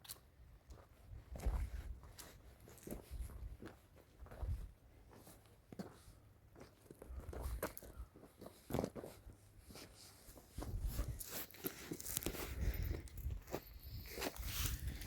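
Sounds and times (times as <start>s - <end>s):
crunching and rustling: 7.6s - 15.0s.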